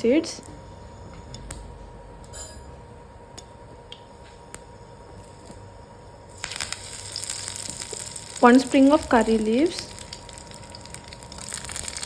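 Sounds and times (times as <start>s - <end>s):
seeds popping in hot oil: 3.9s - 12.0s.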